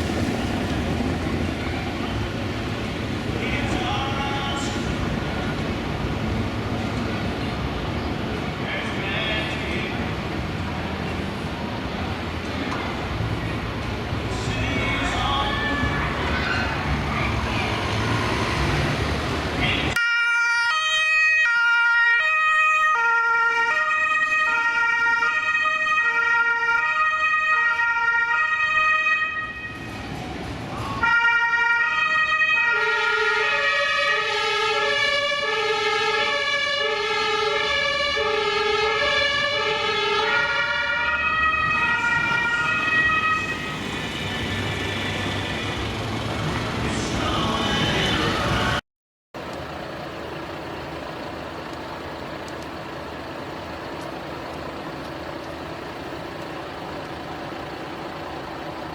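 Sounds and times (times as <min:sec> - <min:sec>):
electronic two-tone siren: 0:37.3 - 0:45.9.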